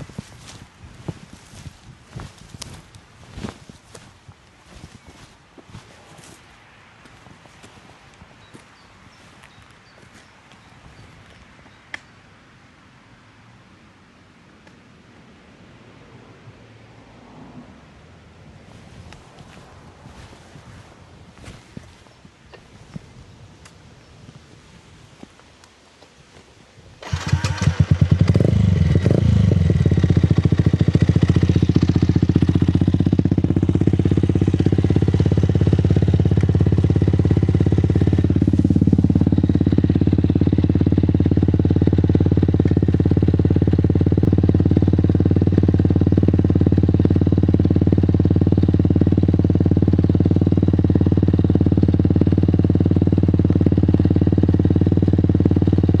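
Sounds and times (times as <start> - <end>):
motorcycle engine starting and idling: 0.0 - 4.1, 27.0 - 56.0
motorcycle engine revving: 27.0 - 56.0.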